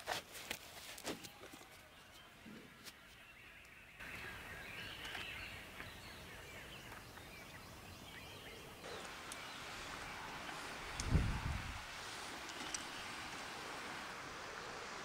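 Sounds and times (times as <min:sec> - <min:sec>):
faint outdoor hiss: 0:00.0 - 0:15.0
birds chirping: 0:01.8 - 0:15.0.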